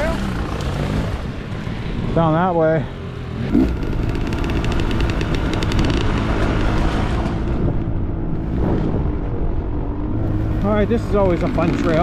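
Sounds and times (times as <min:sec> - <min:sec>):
dirt bike engine running: 0:03.4 - 0:12.0
sharp ticks: 0:03.6 - 0:06.8.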